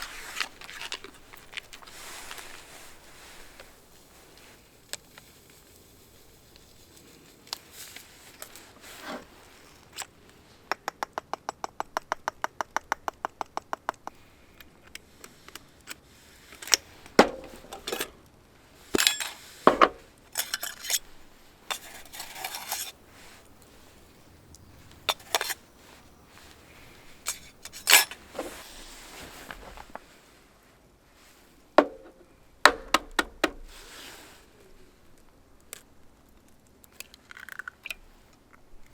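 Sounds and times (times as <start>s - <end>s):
metal cookware clanking: 17.2s - 18.1s, 19.0s - 21.0s, 21.7s - 23.0s, 25.1s - 25.6s, 27.3s - 28.5s.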